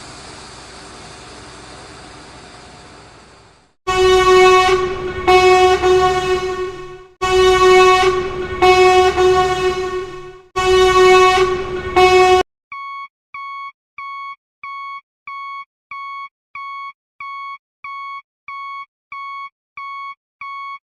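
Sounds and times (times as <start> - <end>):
horn blaring: 3.9 - 12.4.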